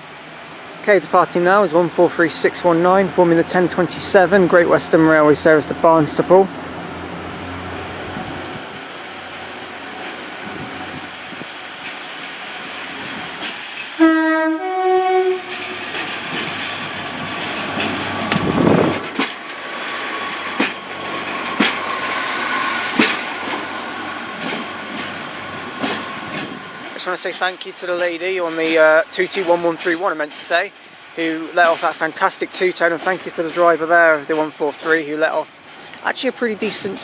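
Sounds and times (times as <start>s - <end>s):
diesel train pulling out: 0.0s - 37.0s
wheels clicking over rail joints: 8.8s - 37.0s
two-tone train horn: 14.0s - 15.8s.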